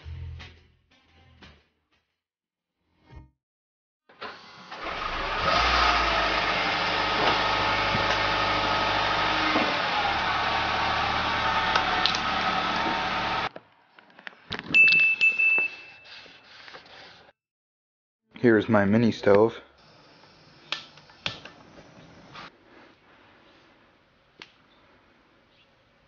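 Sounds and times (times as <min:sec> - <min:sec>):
car engine running: 0:04.9 - 0:13.5
short high beep: 0:14.8 - 0:16.1.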